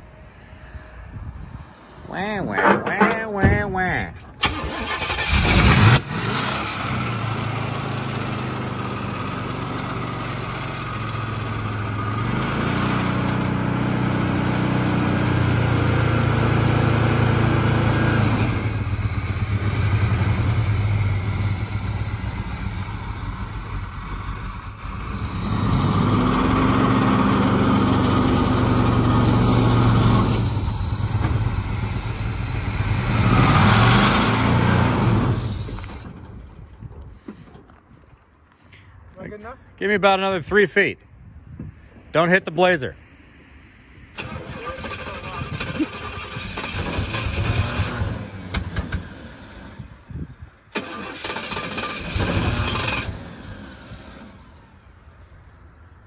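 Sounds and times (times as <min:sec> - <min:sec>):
car engine revving: 0:04.4 - 0:36.0.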